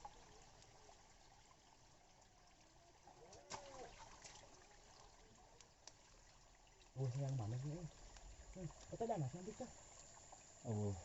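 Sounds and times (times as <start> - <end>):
faint background hiss: 0.0 - 11.0
faint voice: 3.2 - 4.0.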